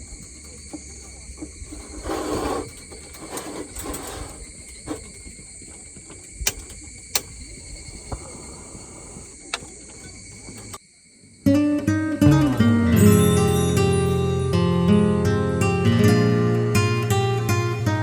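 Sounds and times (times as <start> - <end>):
insect chorus buzzing: 0.0 - 14.8.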